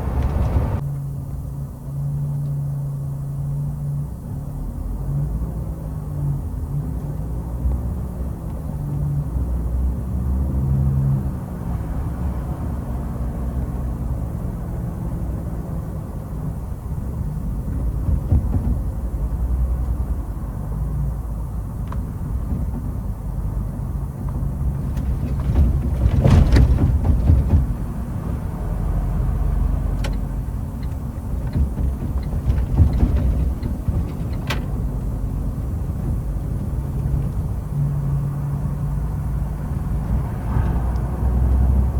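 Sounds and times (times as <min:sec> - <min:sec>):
truck engine rumbling: 0:00.0 - 0:41.9
knocks and rattles: 0:17.6 - 0:19.3, 0:24.3 - 0:28.2, 0:30.1 - 0:37.4.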